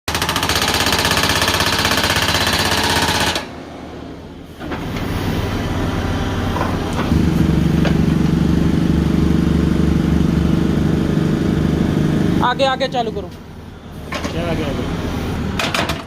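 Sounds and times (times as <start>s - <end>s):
hydraulic breaker hammering: 0.1s - 3.5s, 15.6s - 16.0s
excavator engine running: 0.1s - 16.0s.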